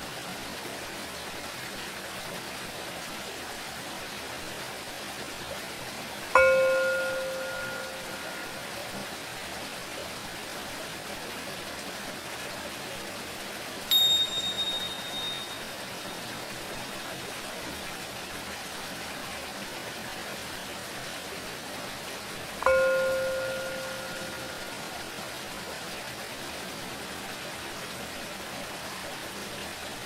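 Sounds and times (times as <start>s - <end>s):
running water hiss: 0.0s - 30.0s
singing bowl ringing: 6.4s - 9.1s, 13.9s - 16.8s, 22.6s - 25.4s
tingsha cymbals ringing: 6.4s - 9.1s, 13.9s - 16.8s, 22.6s - 25.4s.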